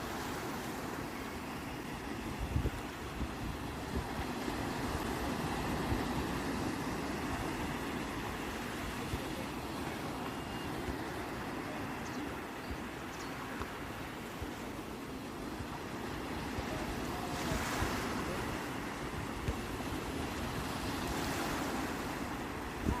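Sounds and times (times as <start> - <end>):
sea waves washing onto shore: 0.0 - 23.0.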